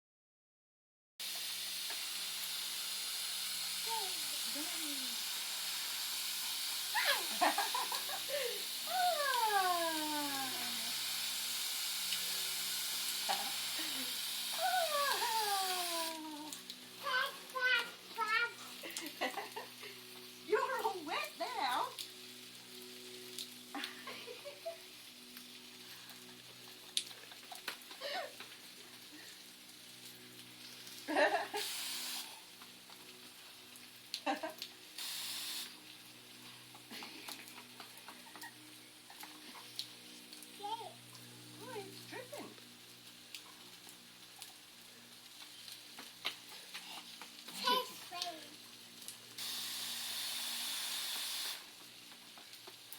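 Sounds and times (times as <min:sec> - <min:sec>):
running water hiss: 0:01.2 - 0:52.9
small child vocalizing: 0:14.6 - 0:18.6.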